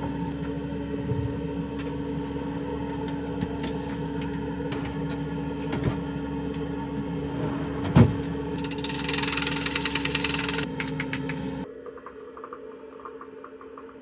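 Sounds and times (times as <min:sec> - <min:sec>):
van engine running: 0:00.0 - 0:11.7
fast rattling: 0:08.6 - 0:11.5.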